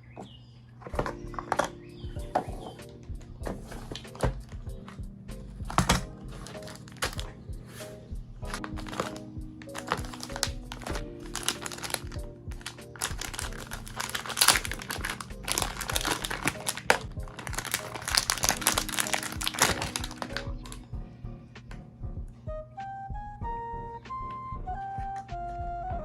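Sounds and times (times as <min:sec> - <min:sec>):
background music: 0:00.9 - 0:26.0
packaging crinkling and rustling: 0:03.5 - 0:05.0, 0:05.7 - 0:07.3, 0:08.5 - 0:20.8.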